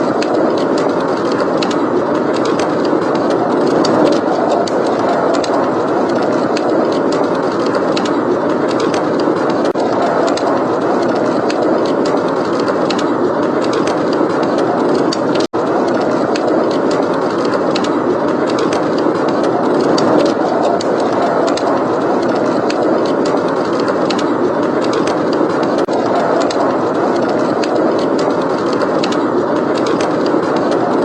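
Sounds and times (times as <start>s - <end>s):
blizzard wind blowing: 0.0s - 31.0s
wood fire crackling: 0.0s - 31.0s.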